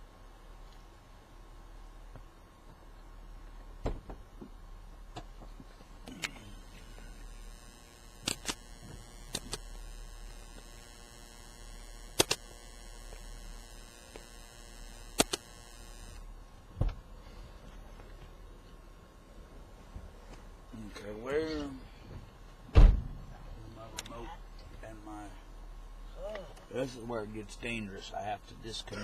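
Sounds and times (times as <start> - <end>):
steady low hum: 0.0 - 29.0
high buzzing tone: 6.0 - 16.6.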